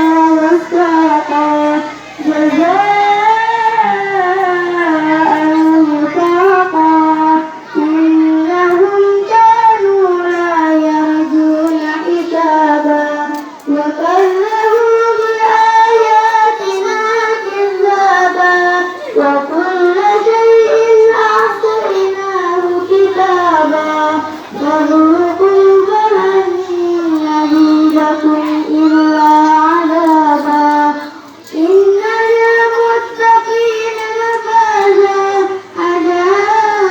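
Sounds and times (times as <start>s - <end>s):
girl chanting melodic recitation: 0.0s - 36.9s.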